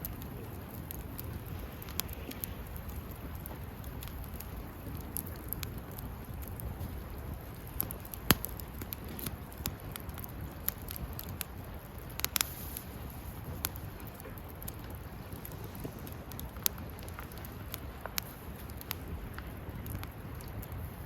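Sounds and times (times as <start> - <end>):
fire pop: 0.0 - 21.0
low rumble of burning: 0.0 - 21.0
wood fire crackling: 0.0 - 21.0.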